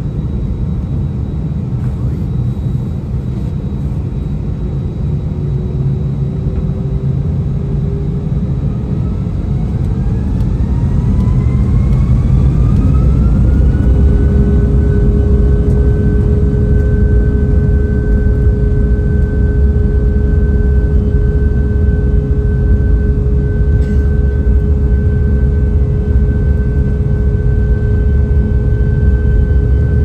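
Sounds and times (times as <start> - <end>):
jet engines whining: 0.0 - 30.0
low rumble: 0.0 - 30.0.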